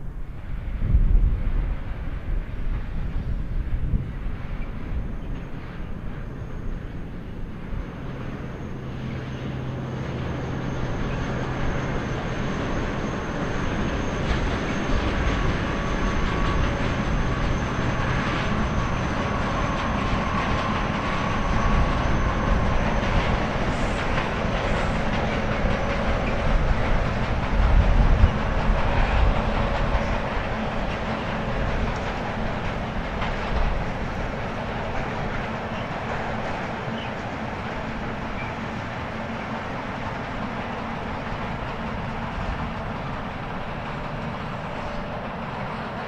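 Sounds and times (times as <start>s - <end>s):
train running on rails: 0.0s - 46.0s.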